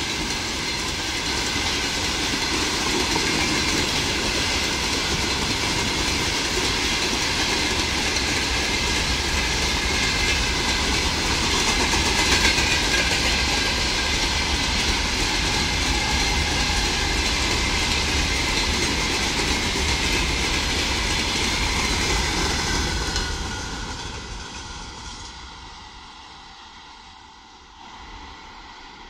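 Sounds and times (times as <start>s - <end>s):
freight train wheels on rails: 0.0s - 29.0s.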